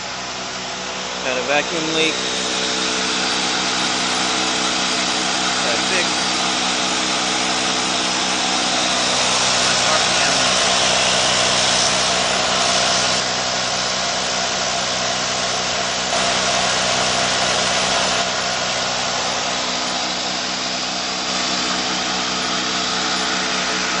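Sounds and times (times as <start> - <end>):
car engine running: 0.0 - 24.0
strong hiss: 1.2 - 12.9.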